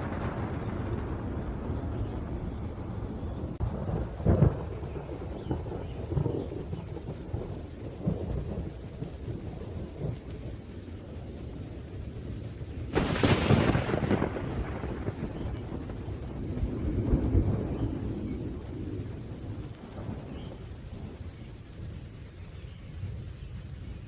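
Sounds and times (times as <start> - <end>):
sharp thunder crack: 0.0 - 10.2, 12.9 - 21.2
rain: 0.0 - 24.0
thunder rumbling: 0.0 - 24.0.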